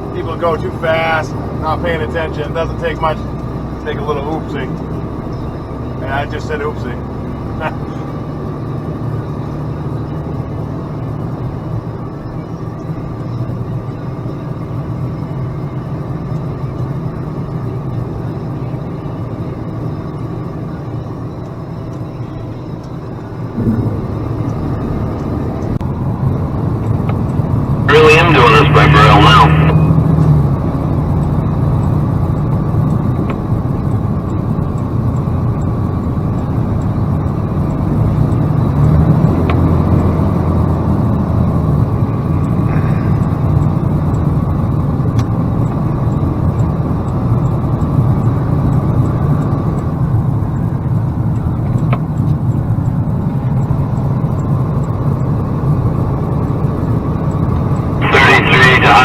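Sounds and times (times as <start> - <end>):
road noise: 0.0 - 59.0
truck engine drone: 0.0 - 59.0.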